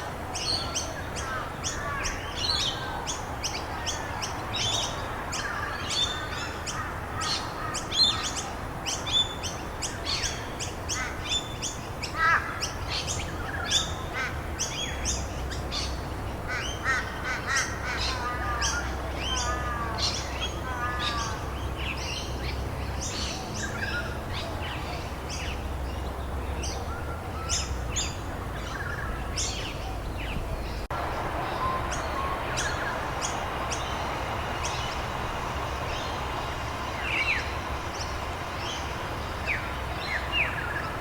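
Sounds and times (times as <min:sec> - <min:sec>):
birds chirping and calling: 0:00.0 - 0:41.0
rain hiss: 0:30.8 - 0:41.0.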